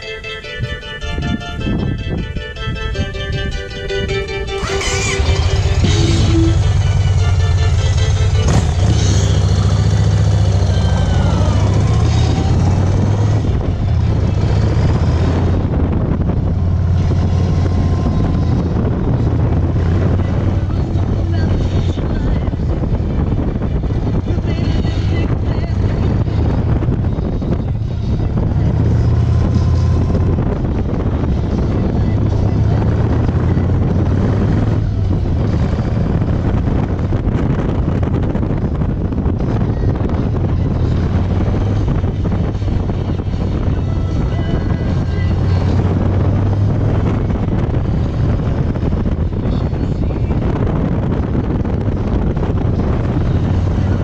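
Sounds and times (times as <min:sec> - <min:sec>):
wind on microphone: 0:00.0 - 0:54.0
motorcycle engine running: 0:02.7 - 0:54.0.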